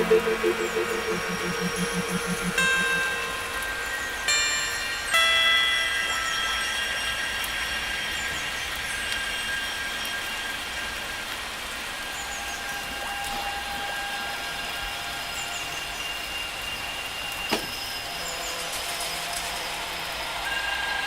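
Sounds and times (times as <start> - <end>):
steady tone: 0.0 - 5.1.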